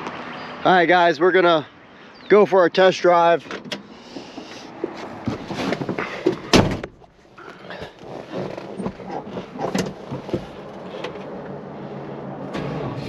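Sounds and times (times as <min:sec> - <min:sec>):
rustling and clattering: 0:03.5 - 0:11.4
car door shutting: 0:05.3 - 0:07.0, 0:12.5 - 0:13.0.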